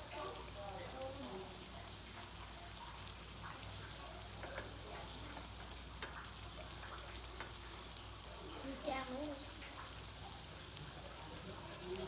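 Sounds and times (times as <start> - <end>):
oil sizzling in a frying pan: 0.0 - 12.0.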